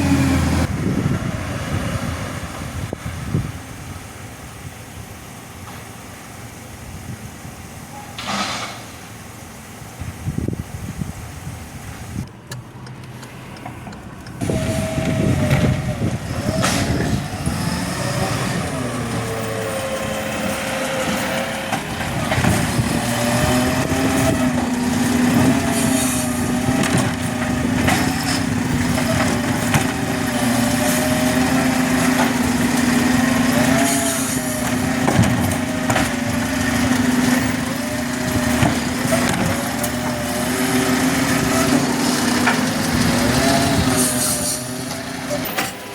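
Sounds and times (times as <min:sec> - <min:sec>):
garbage truck running: 0:00.0 - 0:12.8, 0:13.5 - 0:45.9
knocks and clatters: 0:26.7 - 0:30.2, 0:34.6 - 0:37.6, 0:38.3 - 0:40.2.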